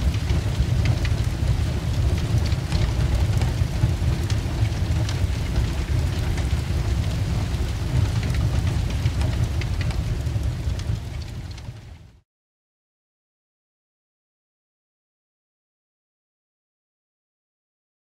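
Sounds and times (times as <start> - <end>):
fire rumbling and crackling: 0.0 - 12.2.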